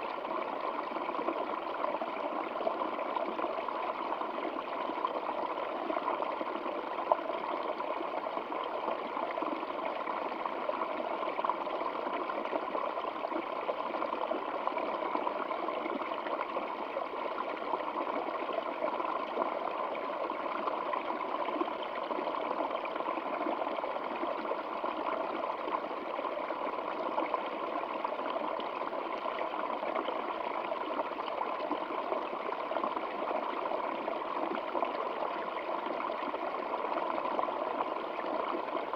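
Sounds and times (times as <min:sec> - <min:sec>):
stream water flowing: 0:00.0 - 0:38.9.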